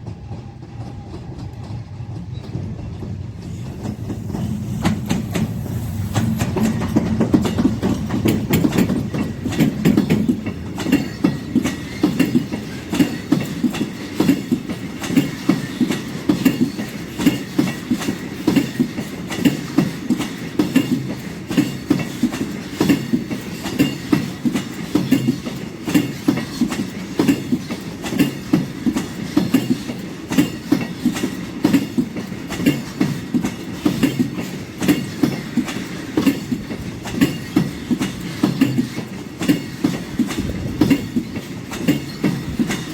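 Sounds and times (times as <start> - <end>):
train wheels clattering over rail joints: 0.0 - 42.9.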